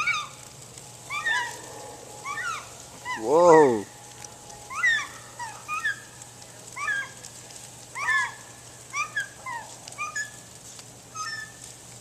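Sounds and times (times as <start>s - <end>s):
seagulls squawking: 0.0s - 0.4s, 1.0s - 1.6s, 2.2s - 3.6s, 4.7s - 7.2s, 7.9s - 10.4s, 11.1s - 11.6s.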